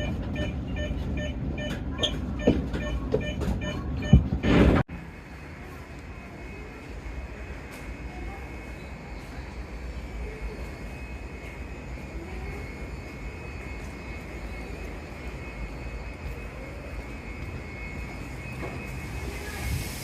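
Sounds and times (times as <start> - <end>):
train low rumble: 0.0 - 20.0
faint steady whine: 5.1 - 20.0.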